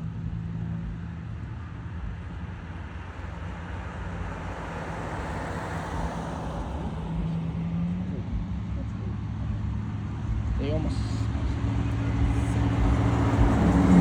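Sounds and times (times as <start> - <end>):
low engine hum: 0.0 - 14.0
car driving past: 3.0 - 10.6, 11.2 - 14.0.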